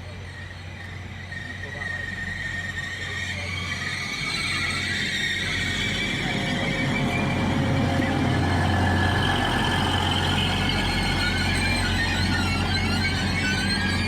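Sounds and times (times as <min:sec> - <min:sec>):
high whining tones: 0:00.4 - 0:14.0
large vehicle engine humming: 0:06.0 - 0:14.0.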